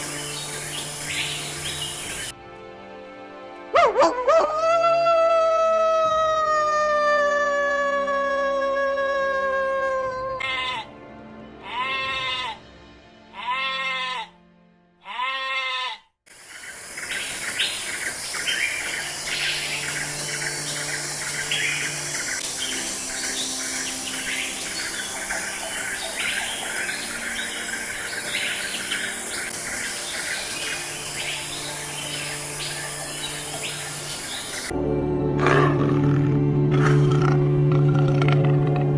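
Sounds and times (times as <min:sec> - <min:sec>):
bird and insect chirps: 0:00.0 - 0:02.3, 0:16.3 - 0:34.7
faint background music: 0:00.0 - 0:15.9, 0:17.1 - 0:38.9
steady hiss: 0:16.3 - 0:34.7.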